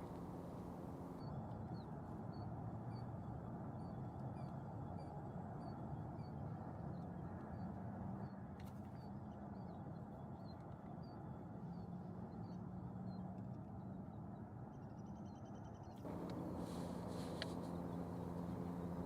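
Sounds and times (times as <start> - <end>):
low background rumble: 0.0 - 1.2, 16.1 - 19.0.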